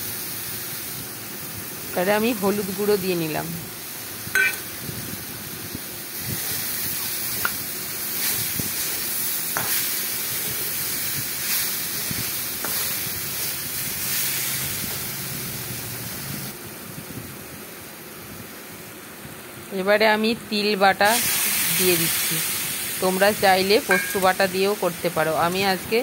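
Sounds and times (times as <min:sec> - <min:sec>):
fruit sizzling in oil: 0:00.0 - 0:16.6, 0:20.5 - 0:26.0.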